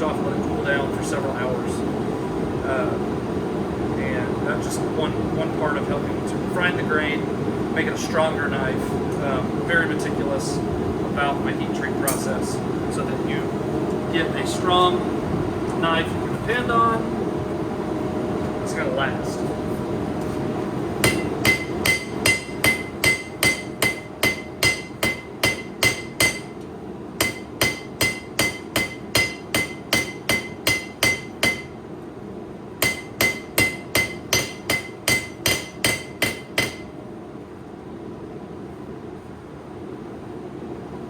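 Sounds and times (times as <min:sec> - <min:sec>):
steady low hum: 0:00.0 - 0:41.0
hammer striking steel on anvil: 0:21.0 - 0:26.6, 0:27.2 - 0:31.8, 0:32.8 - 0:36.9.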